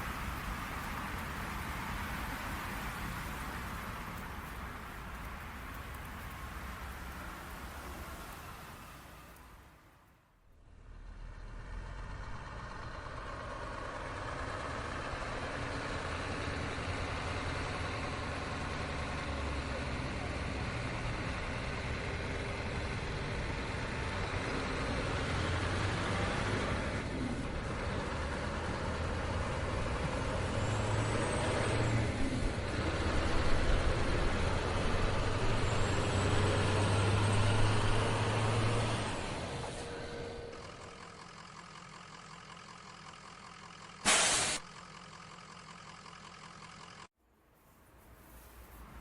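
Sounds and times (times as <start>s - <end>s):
truck engine and road noise: 0.0s - 49.0s
air brakes blast: 44.0s - 44.7s.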